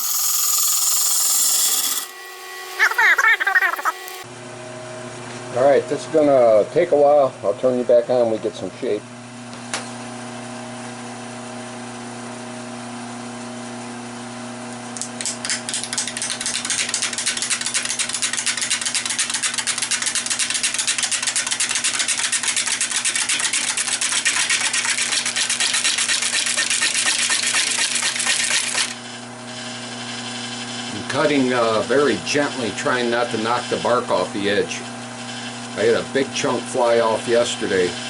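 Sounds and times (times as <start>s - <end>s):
wood lathe humming: 0.0s - 4.3s, 18.4s - 38.0s
gouge scraping wood: 15.9s - 28.9s.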